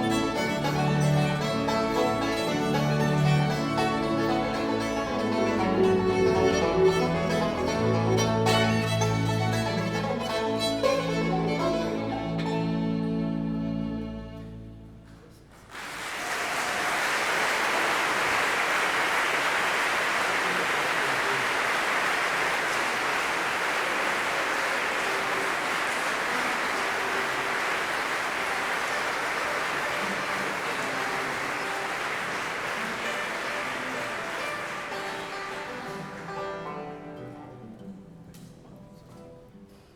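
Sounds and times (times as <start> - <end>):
audience applauding: 0.0 - 12.1, 15.1 - 37.0
bluegrass music with fiddle: 0.0 - 15.2, 33.1 - 39.5.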